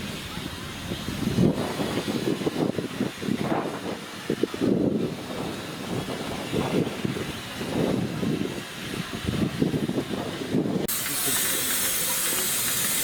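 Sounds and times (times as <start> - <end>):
train rumbling: 4.8 - 13.0.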